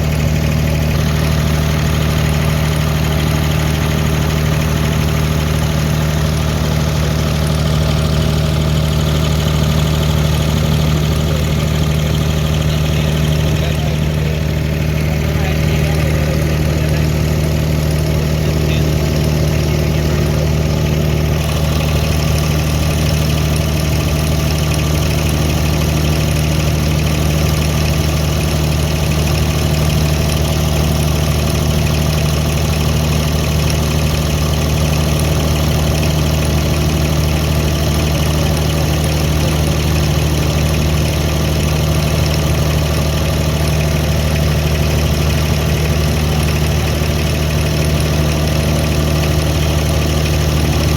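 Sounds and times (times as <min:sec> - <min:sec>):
boat diesel engine droning: 0:00.0 - 0:50.9.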